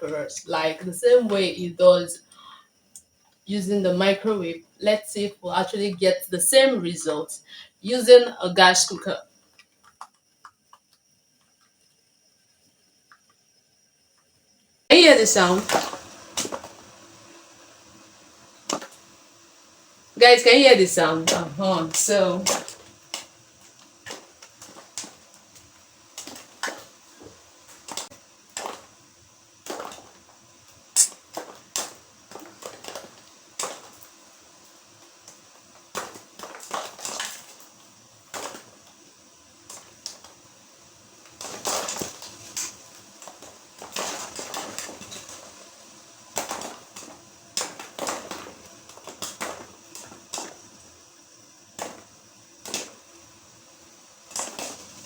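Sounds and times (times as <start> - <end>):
popcorn popping in paper bag: 9.4 - 11.8, 14.9 - 55.0.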